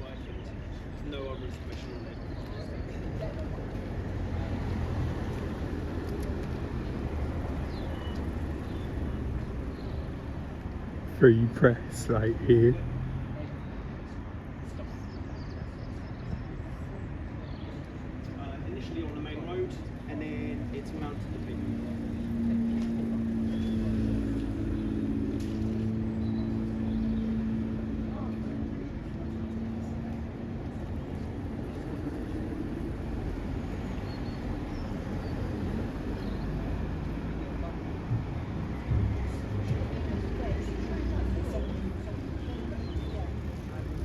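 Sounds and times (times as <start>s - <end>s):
low rumble of street traffic: 0.0s - 44.0s
vehicle engine idling: 20.1s - 44.0s.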